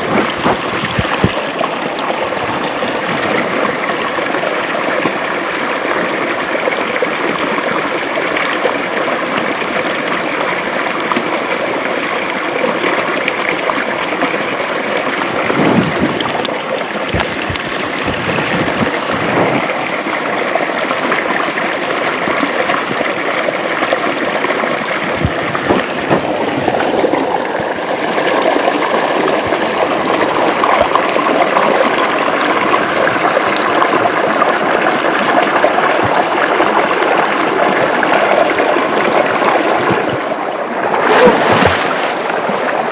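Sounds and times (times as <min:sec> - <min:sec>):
river and waterfall over rocks: 0:00.0 - 0:42.9
low bumps: 0:25.1 - 0:27.4.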